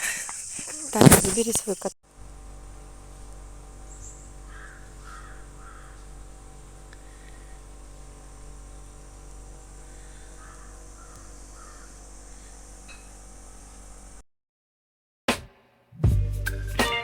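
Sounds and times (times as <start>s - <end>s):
low hum and hiss: 0.0s - 14.2s
faint bird calls: 3.9s - 6.2s, 9.6s - 13.1s.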